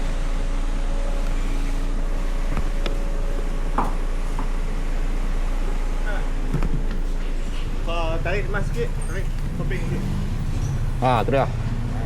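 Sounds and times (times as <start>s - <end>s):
vehicle engine idling: 0.0s - 12.0s
short squeaks: 6.9s - 7.8s, 8.6s - 11.2s.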